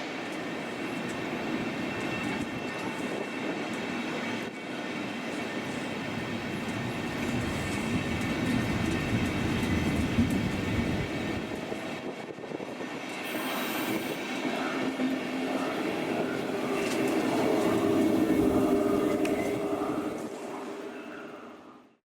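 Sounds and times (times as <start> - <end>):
train wheels rumbling on track: 0.0 - 21.4
high squeal: 13.2 - 20.2.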